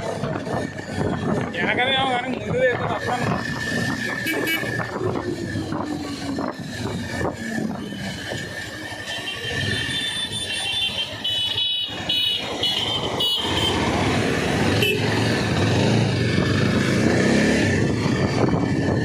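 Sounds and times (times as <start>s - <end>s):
motorcycle engine running: 0.0s - 19.0s
vehicle horn honking: 4.2s - 4.7s, 9.2s - 13.8s, 14.7s - 15.1s.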